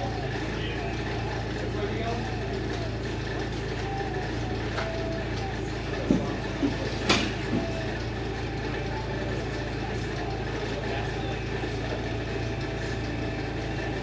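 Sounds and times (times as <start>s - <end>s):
truck engine idling: 0.0s - 14.0s
metal knocks and clanks: 6.0s - 7.8s.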